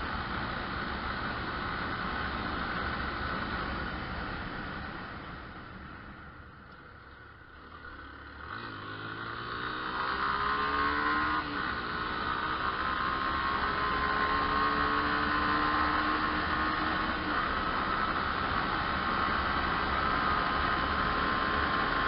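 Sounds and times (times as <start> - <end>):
motorcycle engine accelerating: 7.5 - 22.0.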